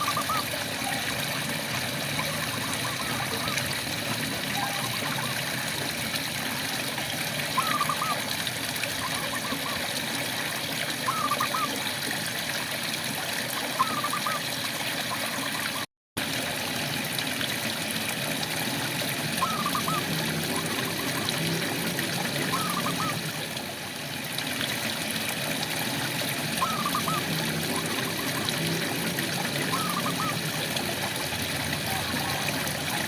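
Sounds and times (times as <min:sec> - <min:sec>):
frog chirping: 0:19.4 - 0:20.1.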